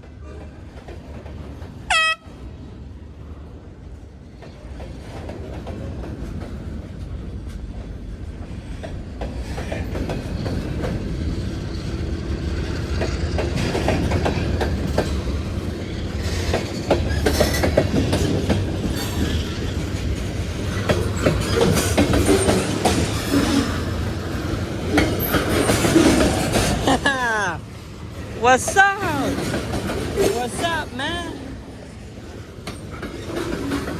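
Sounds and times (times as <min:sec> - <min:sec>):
train wheels clicking over rail joints: 0:04.3 - 0:27.1, 0:29.3 - 0:30.4, 0:31.4 - 0:33.9.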